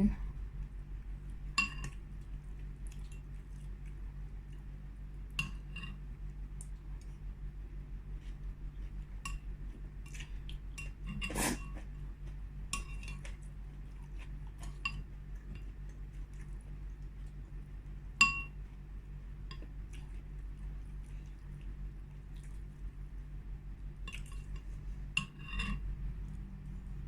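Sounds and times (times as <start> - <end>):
steady low hum: 0.0 - 27.0
utensils clinking against bowl: 25.2 - 25.8.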